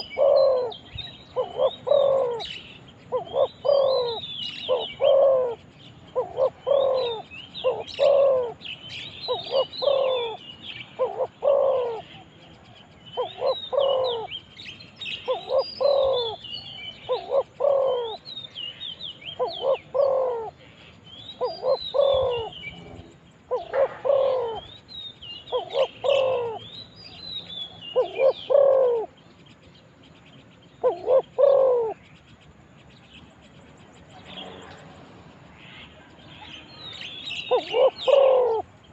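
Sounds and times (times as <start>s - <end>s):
dove cooing: 0.0s - 14.4s, 15.1s - 18.2s, 19.2s - 20.6s, 21.4s - 24.7s, 25.4s - 26.7s, 27.9s - 29.2s, 30.8s - 32.0s, 37.4s - 38.7s
small birds chirping: 0.0s - 38.9s.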